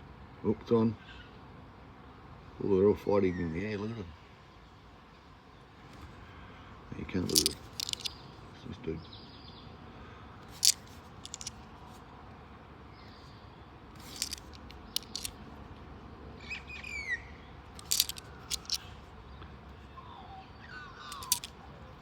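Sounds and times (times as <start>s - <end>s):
coins clicking: 7.3s - 8.1s, 10.5s - 11.6s, 14.0s - 15.3s, 17.8s - 18.8s, 21.1s - 21.5s.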